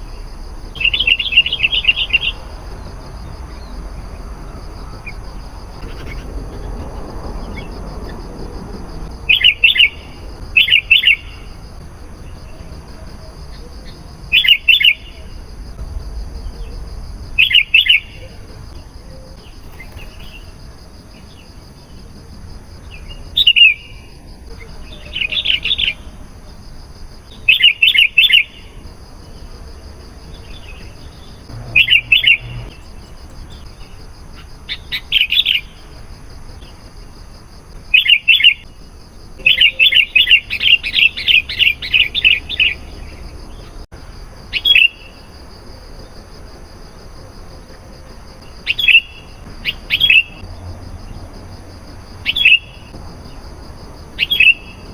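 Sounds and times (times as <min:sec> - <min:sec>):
bird singing bubbling phrases: 0:31.5 - 0:33.0.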